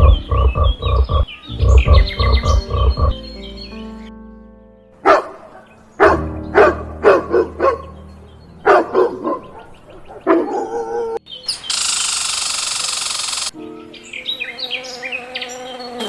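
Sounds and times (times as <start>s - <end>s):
dog barking: 5.0s - 7.9s, 8.6s - 11.2s.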